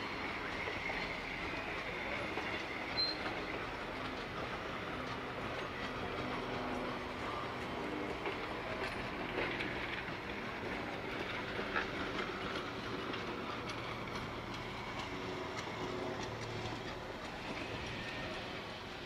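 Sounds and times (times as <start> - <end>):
train wheels on rail: 0.0 - 19.0
wheels clicking over track: 0.0 - 19.0.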